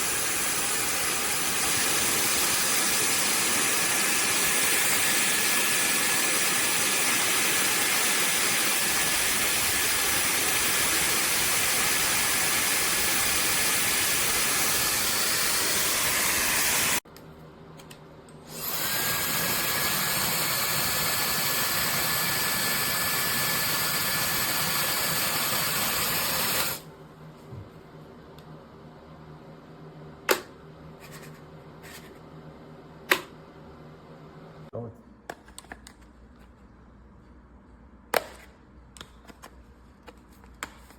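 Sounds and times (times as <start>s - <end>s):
hair dryer whining: 0.0s - 17.0s, 18.5s - 26.9s.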